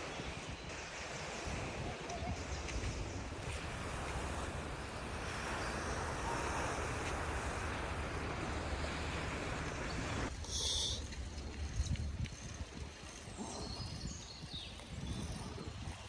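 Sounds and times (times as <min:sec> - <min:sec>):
sea surf washing: 0:00.0 - 0:11.6
wind rumbling on microphone: 0:00.0 - 0:16.0.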